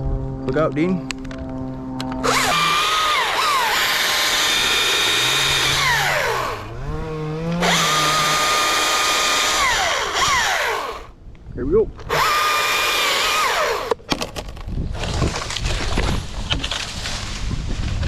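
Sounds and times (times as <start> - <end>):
chainsaw cutting wood: 2.2 - 11.1, 12.0 - 16.9.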